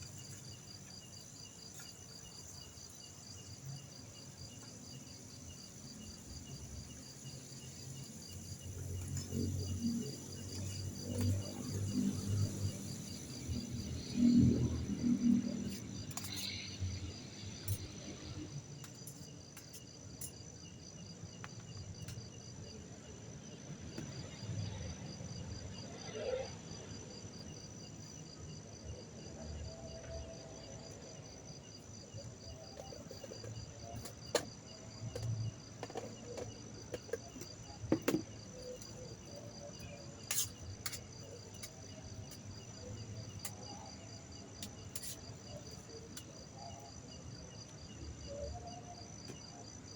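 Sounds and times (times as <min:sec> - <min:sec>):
crickets chirping: 0:00.0 - 0:49.9.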